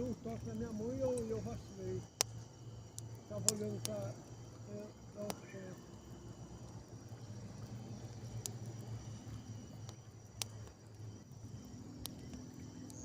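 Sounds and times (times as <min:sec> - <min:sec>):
campfire crackling: 0:00.0 - 0:13.0
fire sharp pops: 0:00.0 - 0:13.0
insects droning: 0:00.0 - 0:13.0
steady low hum: 0:00.0 - 0:13.0.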